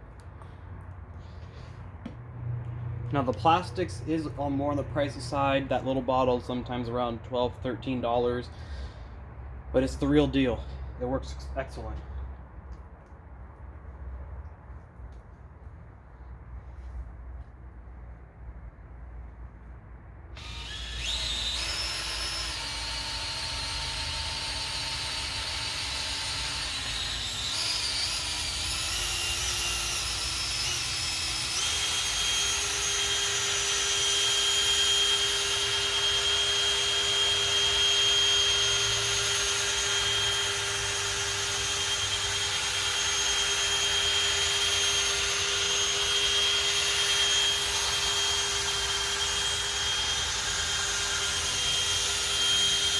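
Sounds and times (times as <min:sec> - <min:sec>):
electric drill whine: 0:20.3 - 0:52.9.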